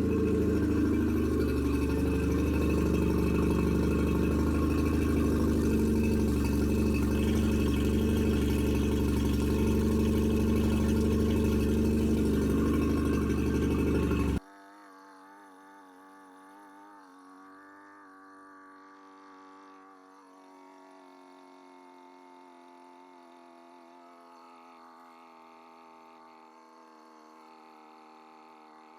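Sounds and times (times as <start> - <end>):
outboard motor running: 0.0 - 14.4, 15.0 - 28.9
faint steady hum: 0.0 - 15.1.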